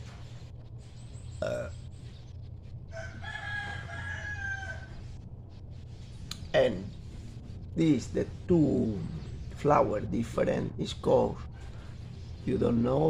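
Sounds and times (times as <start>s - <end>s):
steady low hum: 0.0s - 13.0s
rooster crowing: 2.9s - 5.2s.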